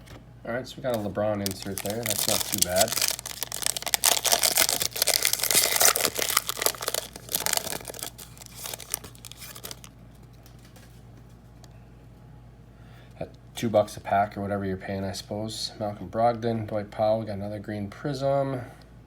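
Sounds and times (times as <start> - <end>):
foil wrapper tearing and crinkling: 0.9 - 9.9.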